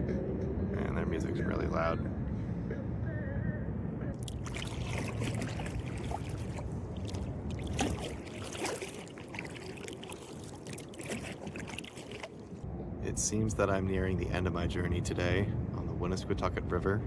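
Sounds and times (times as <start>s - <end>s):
low background rumble: 2.1s - 17.0s
paddle splashing in water: 4.2s - 12.6s
water dripping: 4.2s - 12.6s.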